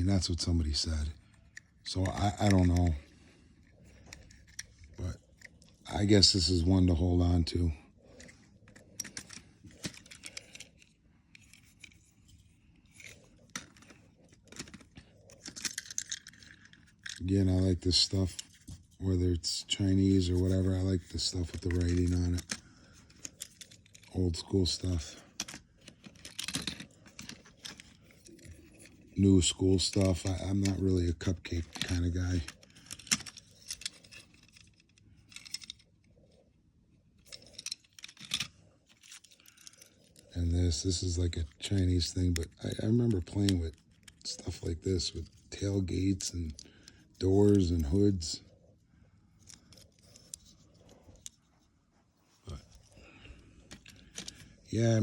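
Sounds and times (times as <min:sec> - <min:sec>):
toy car parts clicking and scraping: 0:00.0 - 0:48.6, 0:49.2 - 0:51.5, 0:52.5 - 0:55.0
toy cars clicking and tapping: 0:01.5 - 0:03.0, 0:12.9 - 0:18.8, 0:20.2 - 0:35.8, 0:37.2 - 0:40.3.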